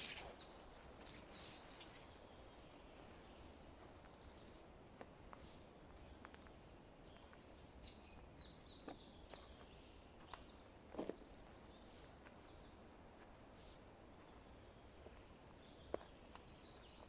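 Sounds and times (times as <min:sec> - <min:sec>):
forest background: 0:00.0 - 0:17.0.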